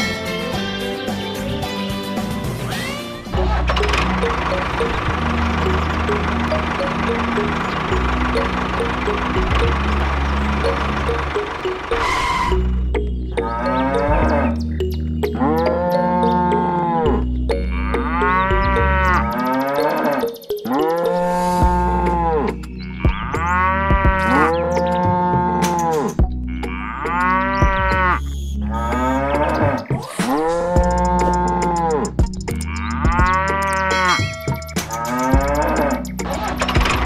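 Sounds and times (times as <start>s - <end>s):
cow mooing: 13.4s - 14.6s, 15.3s - 36.6s.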